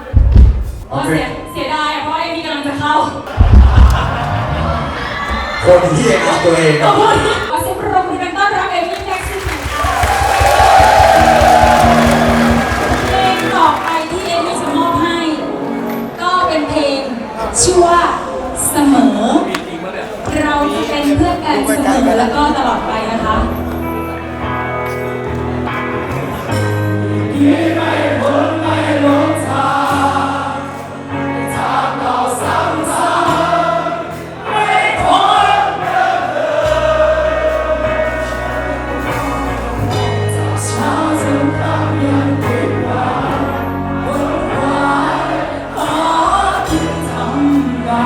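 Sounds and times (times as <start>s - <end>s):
backing track with bass notes: 9.2s - 13.9s, 21.2s - 48.0s
person singing pop song: 27.2s - 48.0s.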